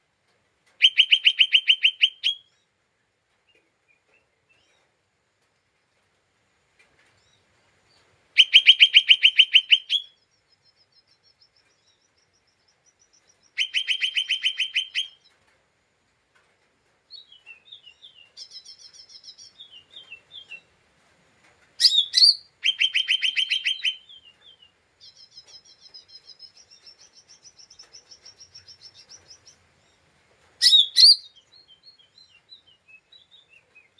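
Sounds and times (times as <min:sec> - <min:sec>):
soft thin bird twittering: 0:30.6 - 0:33.9.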